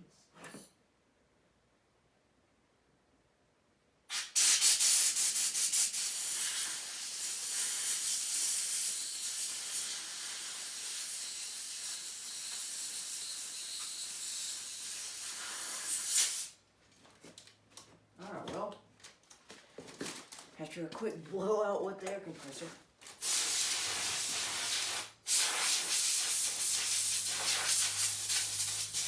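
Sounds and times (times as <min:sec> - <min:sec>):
compressed-air blow gun hissing: 0:04.1 - 0:16.6, 0:23.2 - 0:29.0.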